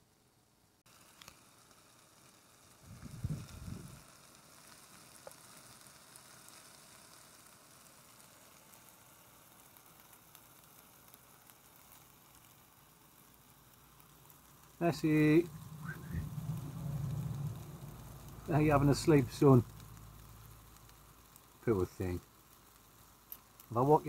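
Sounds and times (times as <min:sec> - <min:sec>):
kebabs sizzling and crackling: 0:00.7 - 0:24.0.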